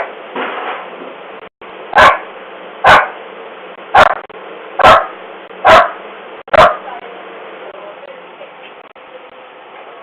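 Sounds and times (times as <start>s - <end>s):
dog barking: 2.0s - 3.2s, 3.9s - 6.9s.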